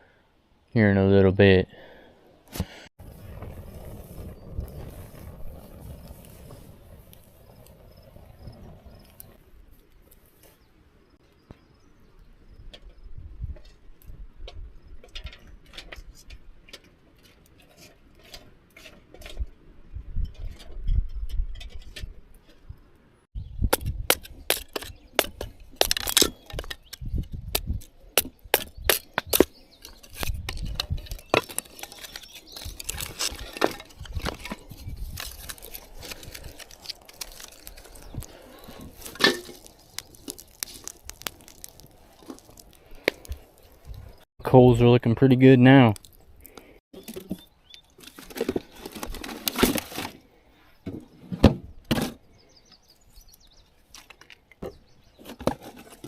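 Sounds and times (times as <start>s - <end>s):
campfire wood crackling: 1.8s - 10.7s, 12.8s - 23.0s, 23.7s - 44.8s, 45.4s - 50.3s
rustling: 3.0s - 10.6s, 29.3s - 44.3s.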